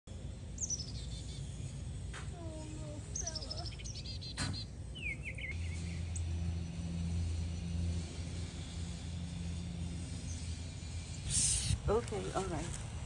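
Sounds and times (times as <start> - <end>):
songbirds chirping: 0.1 - 13.0
low gliding bird calls: 2.4 - 7.0.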